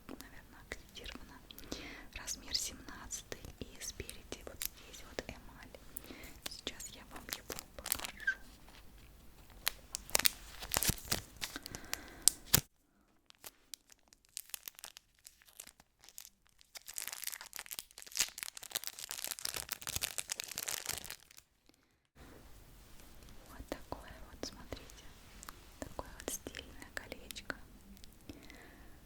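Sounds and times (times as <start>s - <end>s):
packaging tearing and crinkling: 6.3s - 12.7s, 13.3s - 21.5s.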